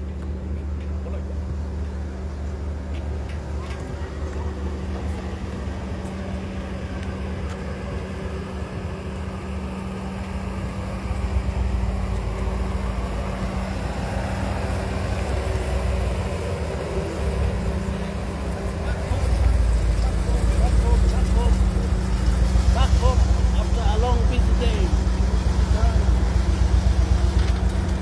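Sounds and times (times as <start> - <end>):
car engine humming: 0.0 - 28.0.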